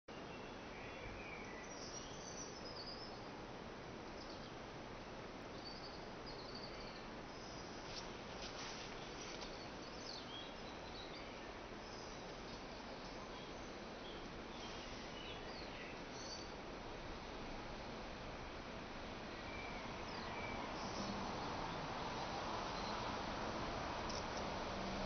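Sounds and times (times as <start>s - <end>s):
faint steady hiss: 0.1s - 25.0s
birds singing and chirping: 9.2s - 16.6s.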